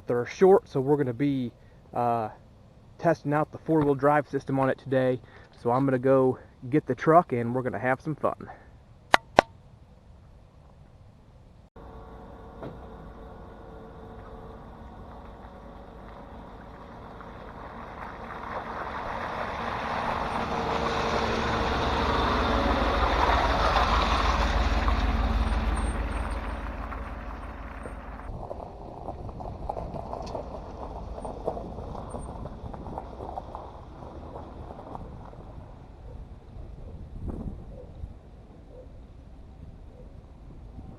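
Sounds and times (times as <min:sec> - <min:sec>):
low rumble: 0:11.6 - 0:38.5
pickup truck driving by: 0:11.8 - 0:36.0.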